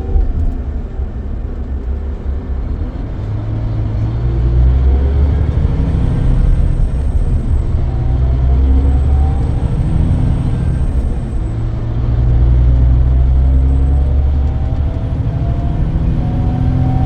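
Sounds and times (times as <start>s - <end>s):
coach engine droning under load: 0.0s - 17.0s.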